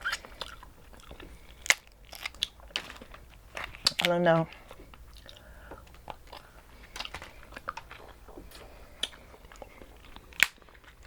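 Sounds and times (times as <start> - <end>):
small mouth clicks: 0.0 - 2.8, 4.8 - 11.0
wet chewing and lip-smacking: 0.0 - 11.0.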